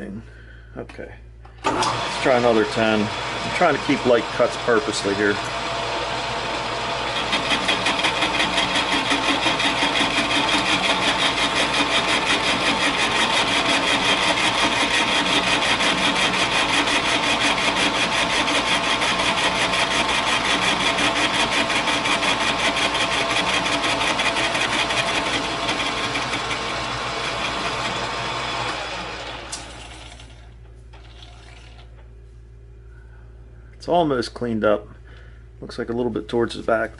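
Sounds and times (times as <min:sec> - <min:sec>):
metal lathe running: 0:01.6 - 0:30.3.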